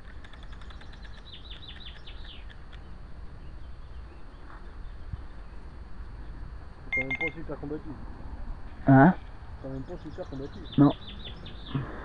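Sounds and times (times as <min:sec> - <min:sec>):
steady low rumble: 0:00.0 - 0:12.0
bird chirping: 0:00.2 - 0:05.6, 0:06.2 - 0:07.5, 0:09.0 - 0:11.9.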